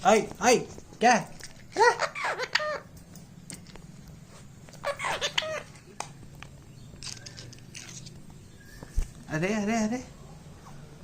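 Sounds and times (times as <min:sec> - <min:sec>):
parakeet chattering: 0:01.7 - 0:02.9, 0:04.7 - 0:06.0.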